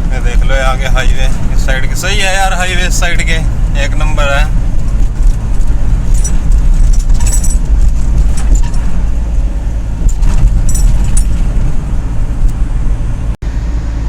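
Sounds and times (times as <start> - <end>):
engine and road rumble: 0.0 - 14.0
light rattles: 0.2 - 13.2.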